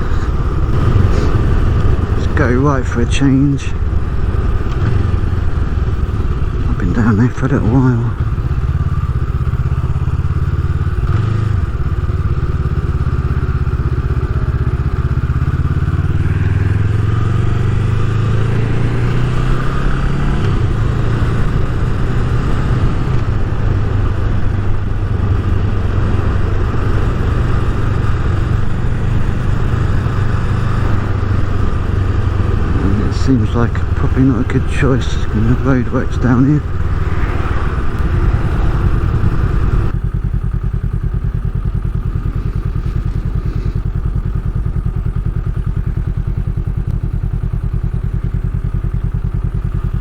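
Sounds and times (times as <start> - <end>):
motorcycle engine running: 0.0 - 50.0.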